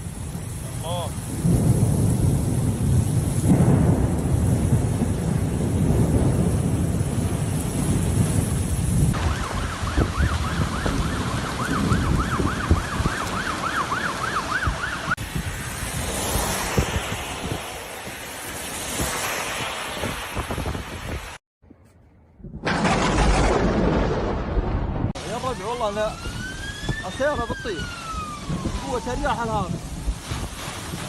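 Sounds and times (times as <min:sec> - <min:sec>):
thunder rumbling: 0:00.0 - 0:21.3, 0:22.4 - 0:31.0
wind: 0:00.0 - 0:31.0
emergency vehicle siren wailing: 0:09.1 - 0:15.3, 0:25.2 - 0:30.1.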